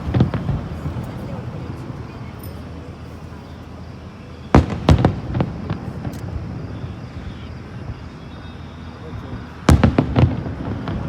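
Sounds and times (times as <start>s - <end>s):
loud firework bangs: 0.0s - 1.8s, 4.5s - 8.1s, 9.2s - 11.0s
fireworks bursting: 0.0s - 2.8s, 4.5s - 11.0s.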